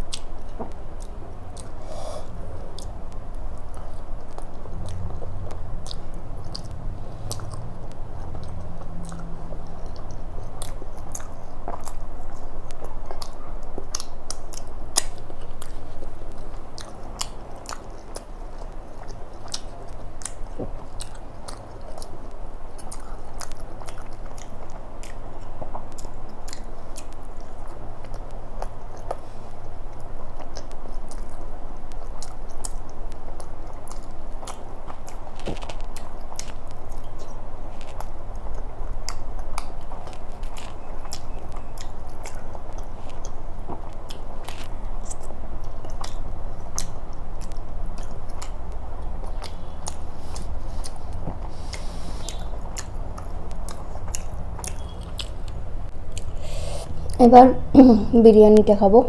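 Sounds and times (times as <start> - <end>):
person chewing and lip-smacking: 0.0 - 58.1
wet mouth clicks: 30.4 - 57.3.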